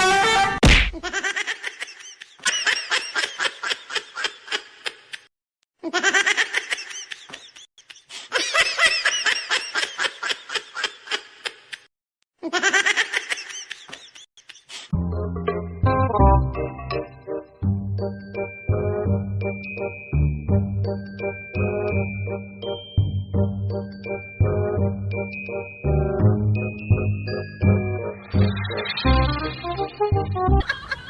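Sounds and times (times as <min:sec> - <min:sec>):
person laughing heartily: 0:05.8 - 0:11.8, 0:30.5 - 0:31.0.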